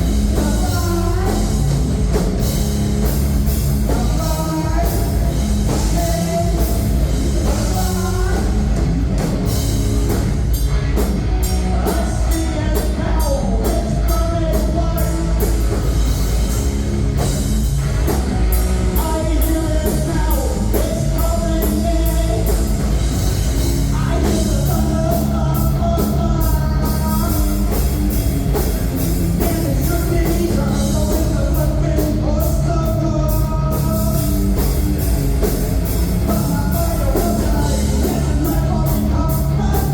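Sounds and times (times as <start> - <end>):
rock band playing: 0.0 - 39.9
person singing: 0.2 - 1.9, 3.9 - 8.8, 11.4 - 15.8, 18.9 - 22.8, 23.8 - 27.9, 29.3 - 34.7, 36.2 - 39.9.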